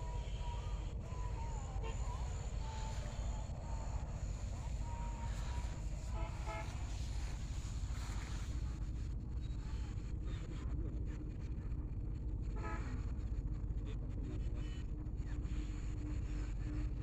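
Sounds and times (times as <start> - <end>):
steady low rumble: 0.0 - 17.0
vehicle horn toot: 6.2 - 6.8.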